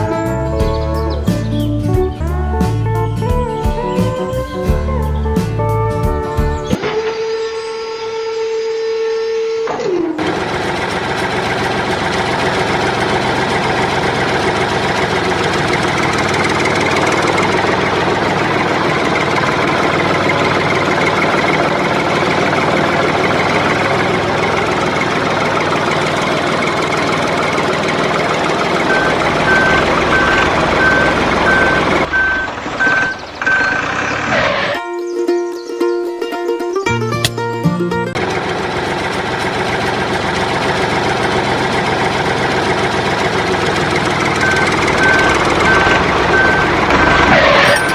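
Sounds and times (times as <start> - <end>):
high electronic beeps: 28.9 - 34.3, 44.4 - 47.9.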